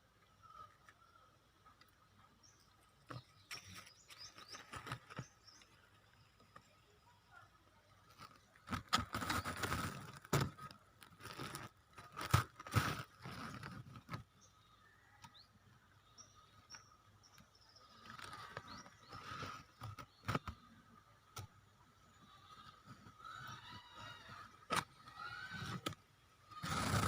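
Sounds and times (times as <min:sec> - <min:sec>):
leaves crinkling and rustling: 0:03.1 - 0:06.6, 0:08.1 - 0:14.2, 0:17.8 - 0:20.6.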